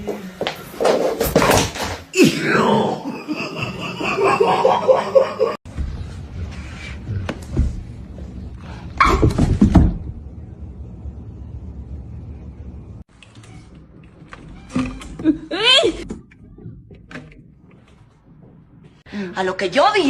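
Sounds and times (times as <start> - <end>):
people laughing: 3.0 - 5.6.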